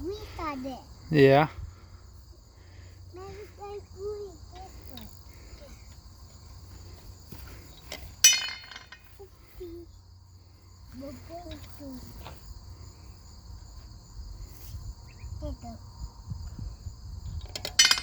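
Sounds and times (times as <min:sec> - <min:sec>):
insects trilling: 0:00.0 - 0:18.0
metallic clink: 0:07.9 - 0:09.2, 0:17.5 - 0:18.0.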